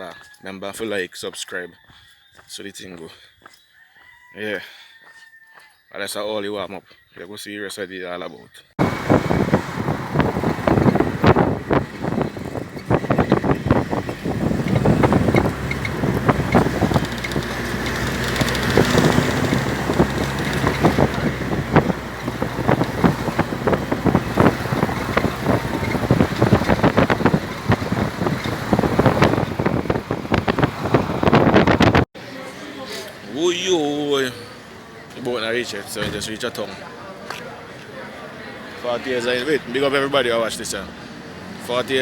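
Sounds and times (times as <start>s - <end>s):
engine running: 8.8s - 32.0s
knocks and thumps: 8.8s - 32.0s
wind buffeting microphone: 8.8s - 32.1s.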